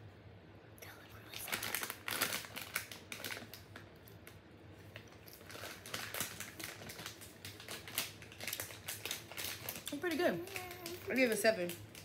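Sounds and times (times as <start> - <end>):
chewing gummy candy: 5.0 - 12.0.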